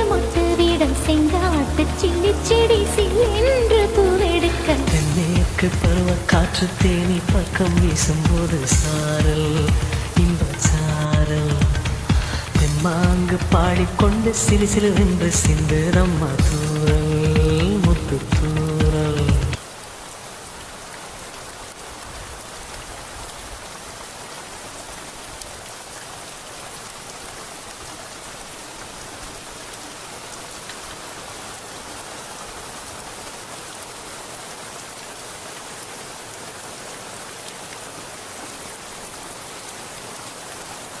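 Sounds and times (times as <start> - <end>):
steady rain hiss: 0.0 - 41.0
drops ticking: 4.2 - 19.6.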